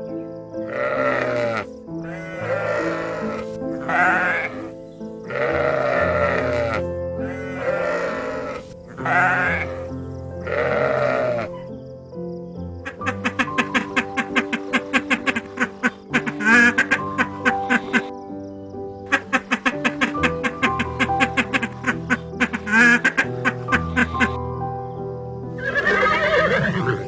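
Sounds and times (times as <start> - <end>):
background music: 0.0 - 27.0
sheep bleating: 0.7 - 4.7, 5.3 - 11.5.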